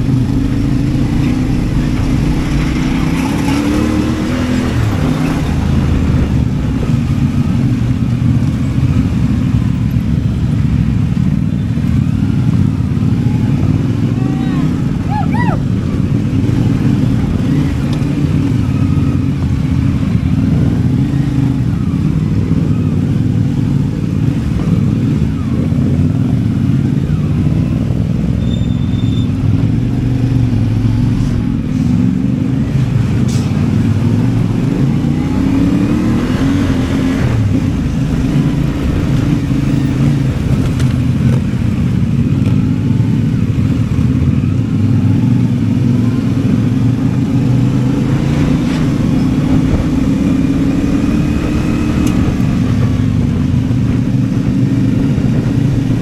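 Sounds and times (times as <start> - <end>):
motorcycle engine running: 0.0 - 33.1.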